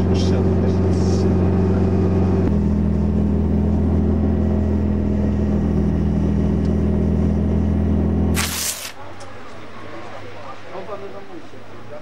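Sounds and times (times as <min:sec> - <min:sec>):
car engine droning: 0:00.0 - 0:08.4.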